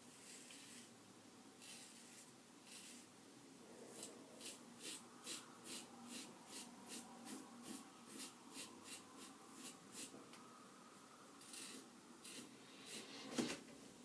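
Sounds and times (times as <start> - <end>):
razor scraping stubble: 1.6 - 3.1, 3.9 - 10.1, 11.4 - 13.1.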